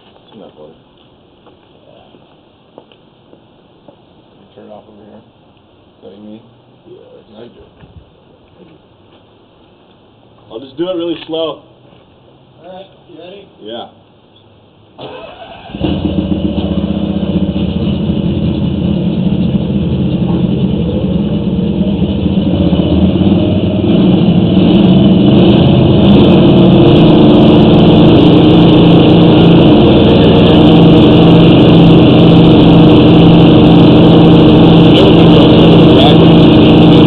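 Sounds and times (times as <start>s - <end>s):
petrol engine running: 15.0s - 37.0s.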